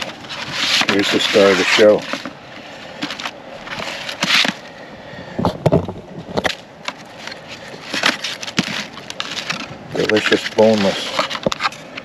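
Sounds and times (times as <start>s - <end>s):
food packaging rustling: 6.9s - 11.9s.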